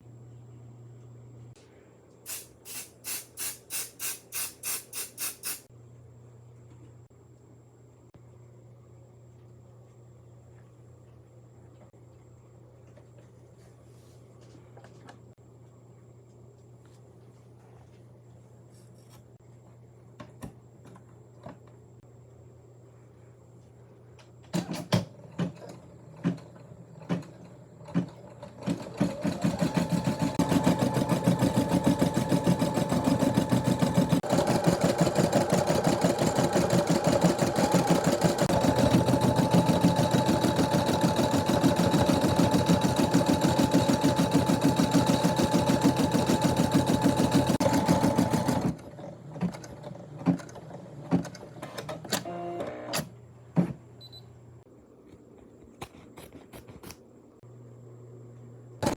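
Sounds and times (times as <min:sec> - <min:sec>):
sharp machine clicks: 0:02.7 - 0:05.7
embroidery machine stitching: 0:25.5 - 0:53.1.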